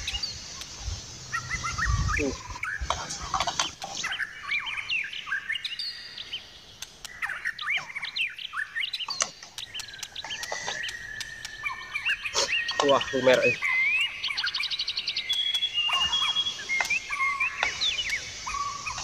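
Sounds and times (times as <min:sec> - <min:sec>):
small birds chirping: 0:00.0 - 0:19.0
light clicks: 0:09.1 - 0:11.6.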